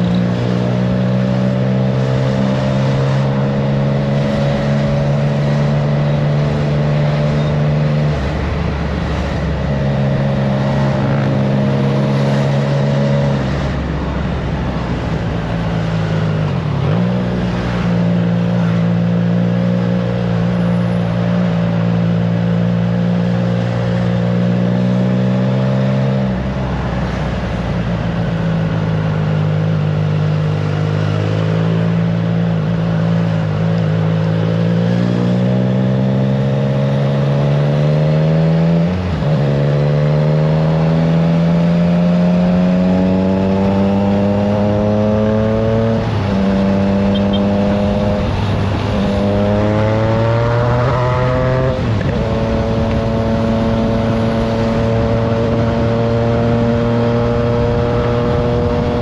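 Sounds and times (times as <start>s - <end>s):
motorcycle engine at road speed: 0.0s - 59.0s
wind noise: 42.5s - 59.0s.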